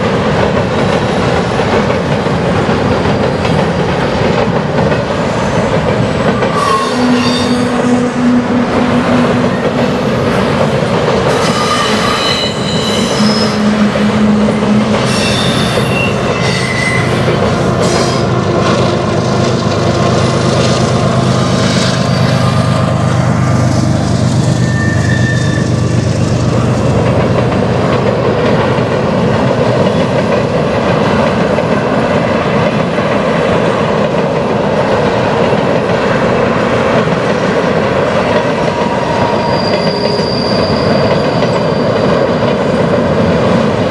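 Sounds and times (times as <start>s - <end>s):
diesel locomotive humming: 0.0s - 43.9s
train clattering over bridge: 0.0s - 43.9s
wheel squeals: 11.3s - 14.0s, 15.0s - 18.2s, 24.5s - 26.0s, 38.8s - 42.4s.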